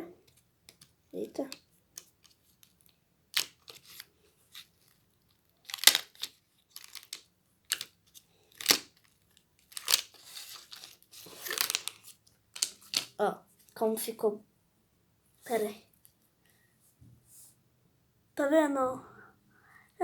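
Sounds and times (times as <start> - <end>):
slime rustling: 3.4 - 13.2.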